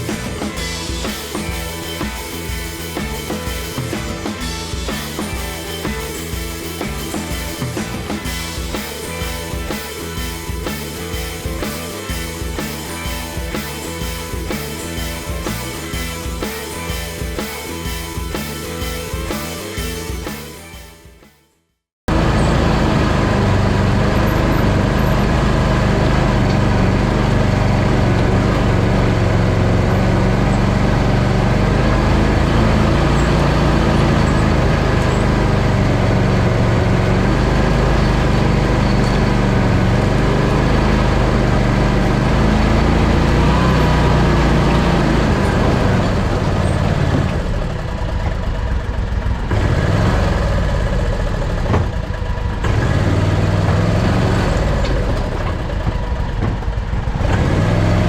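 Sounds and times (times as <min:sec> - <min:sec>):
vehicle engine under load: 0:00.0 - 0:20.8, 0:22.1 - 0:58.0.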